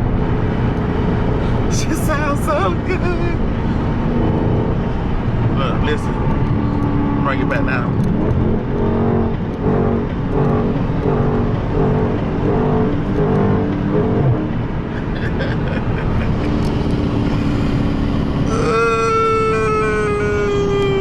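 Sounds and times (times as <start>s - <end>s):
car engine running: 0.0s - 21.0s
road and wind noise: 0.0s - 21.0s.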